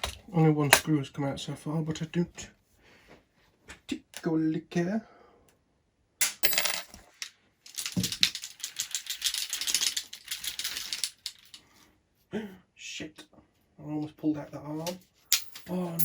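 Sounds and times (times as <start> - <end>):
small metal parts clinking: 6.2 - 11.6, 15.3 - 16.0.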